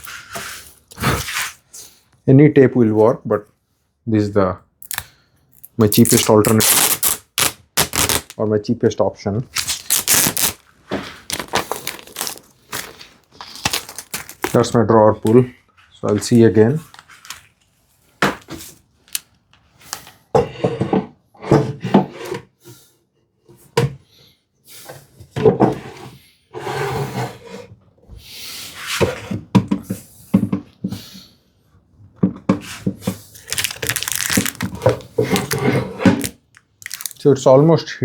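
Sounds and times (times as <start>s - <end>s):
wood scraping on wood: 33.4s - 37.2s.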